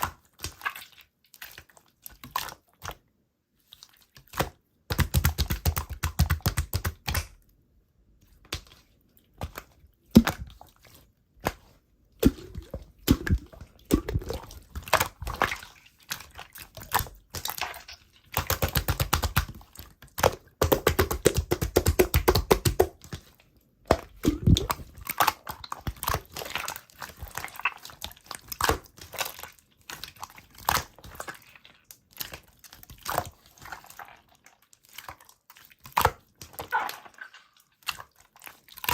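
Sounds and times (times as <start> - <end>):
slime squished wet clicks: 4.1 - 7.5, 9.4 - 10.6, 11.4 - 23.3, 23.9 - 34.1.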